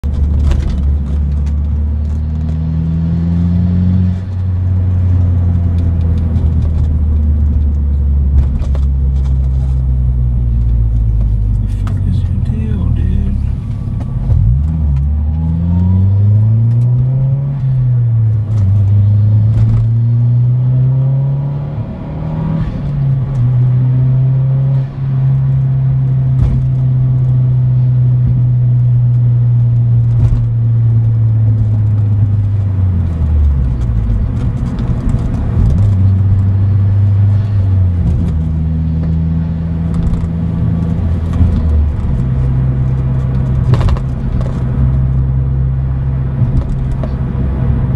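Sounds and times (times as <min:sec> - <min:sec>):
car engine driving from cabin: 0:00.0 - 0:47.9.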